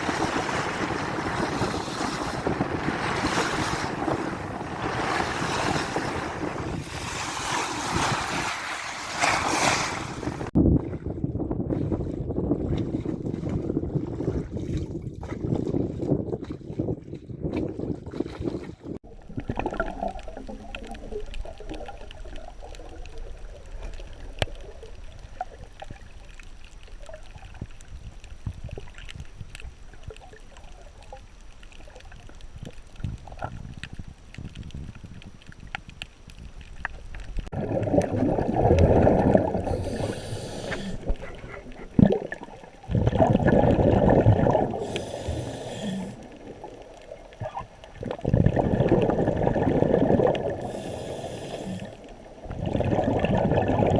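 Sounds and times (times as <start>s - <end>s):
scuba diver exhaling bubbles: 18.4s - 24.9s, 37.5s - 53.9s
underwater crackle of small clicks: 19.2s - 39.5s, 44.4s - 53.1s.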